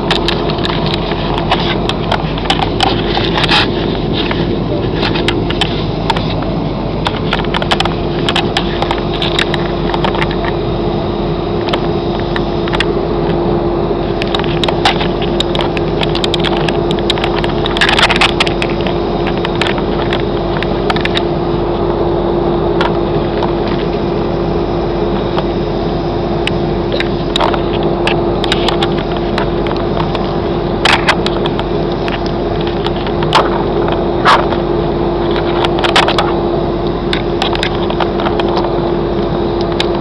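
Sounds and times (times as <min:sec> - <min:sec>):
small clicks and crackles: 0:00.0 - 0:10.6, 0:11.6 - 0:13.4, 0:14.0 - 0:21.9, 0:22.8 - 0:24.3, 0:26.4 - 0:40.0
airliner engine hum: 0:00.0 - 0:40.0.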